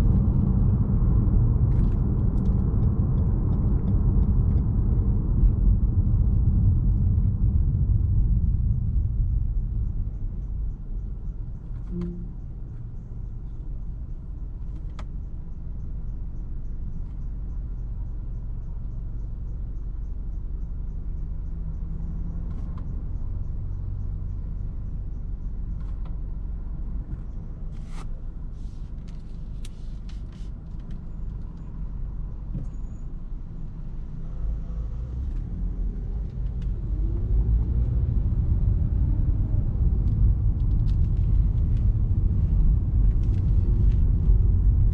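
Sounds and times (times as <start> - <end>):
car engine rumble: 0.0 - 44.9
road noise: 0.0 - 44.9.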